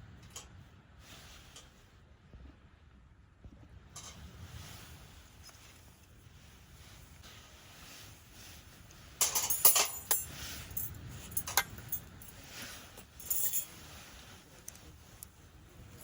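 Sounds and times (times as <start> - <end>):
camp gear clinking and rattling: 9.2 - 16.0.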